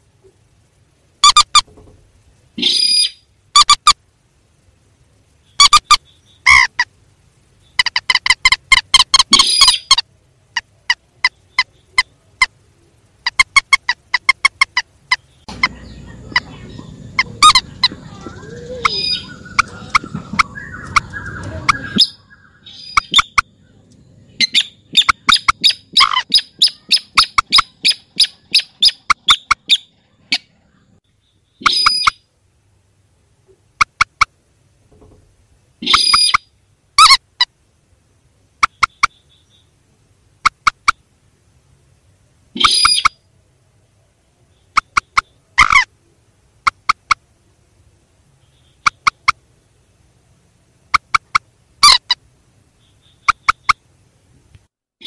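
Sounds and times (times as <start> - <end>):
low rumbling noise: 0.0 - 13.3, 14.0 - 31.5.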